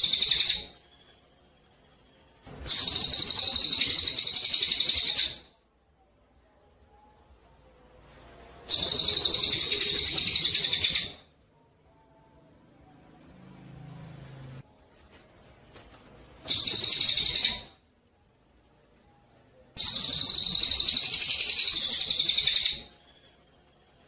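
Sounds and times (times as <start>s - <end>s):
sparrow chattering trills: 16.4s - 17.7s.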